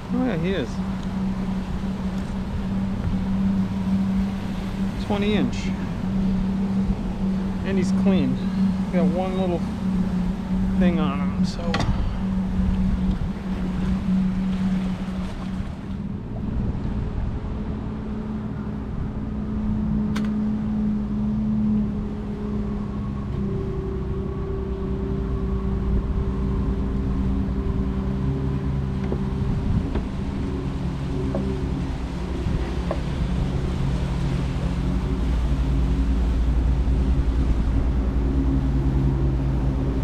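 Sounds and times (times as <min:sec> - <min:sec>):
boat motor running: 0:00.0 - 0:40.0
water noise: 0:00.0 - 0:40.0
wind: 0:00.0 - 0:40.0
sharp click: 0:20.1 - 0:20.4.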